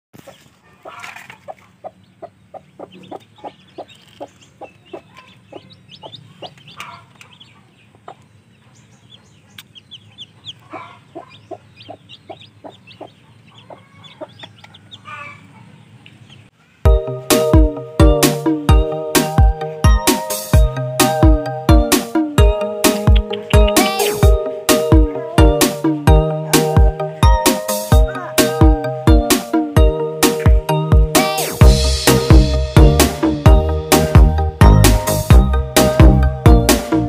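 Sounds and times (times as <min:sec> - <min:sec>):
hen clucking: 0:00.2 - 0:16.5, 0:22.8 - 0:25.8
chicks peeping: 0:00.2 - 0:16.9, 0:21.8 - 0:28.6.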